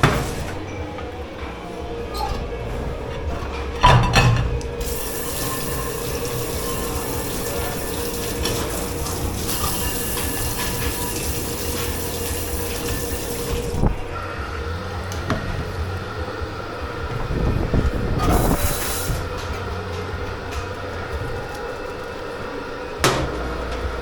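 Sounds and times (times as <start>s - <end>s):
steady machine hum: 0.0s - 24.0s
water running into sink: 3.8s - 14.0s, 18.2s - 19.3s.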